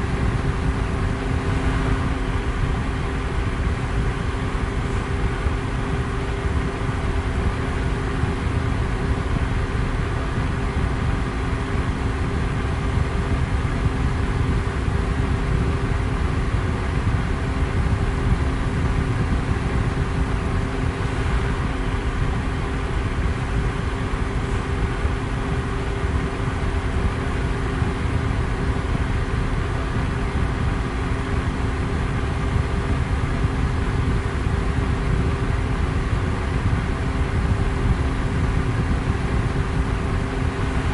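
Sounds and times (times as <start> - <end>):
electric fan running: 0.0 - 40.9.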